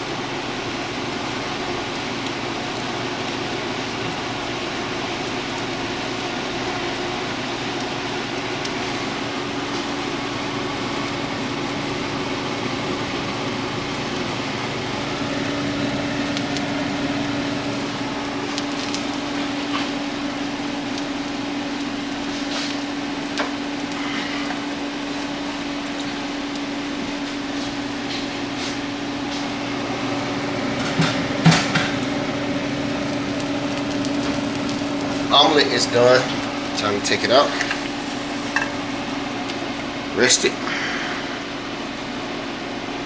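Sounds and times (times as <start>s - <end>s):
bacon sizzling in a frying pan: 0.0s - 43.0s
steady hum: 8.1s - 43.0s.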